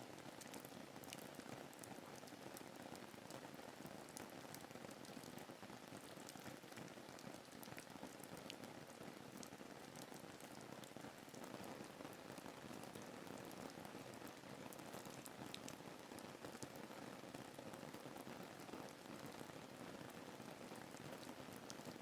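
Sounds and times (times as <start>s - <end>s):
steady rain hiss: 0.0s - 22.0s
raindrop ticks: 15.0s - 15.8s.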